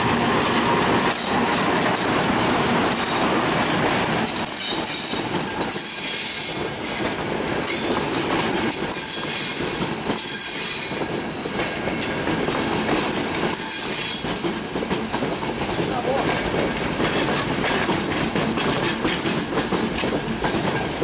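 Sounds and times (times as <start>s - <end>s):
clacks over rail joints: 0.0s - 21.0s
train rumble: 0.0s - 21.0s
train wheels squealing: 3.4s - 14.4s.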